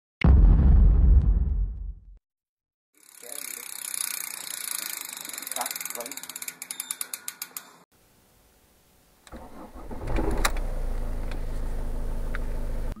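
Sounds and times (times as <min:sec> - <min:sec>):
rapid ratchet-like ticking: 0:03.0 - 0:07.8
car engine cranking and idling: 0:09.3 - 0:13.0.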